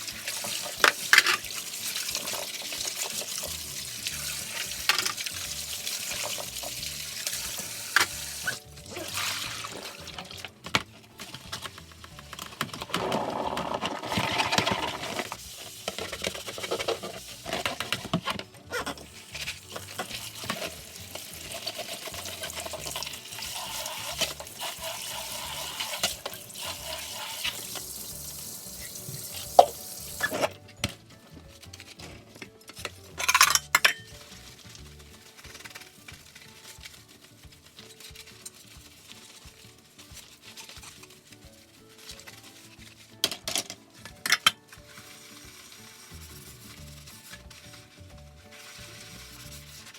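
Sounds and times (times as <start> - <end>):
tap running into a sink: 19.9 - 30.5.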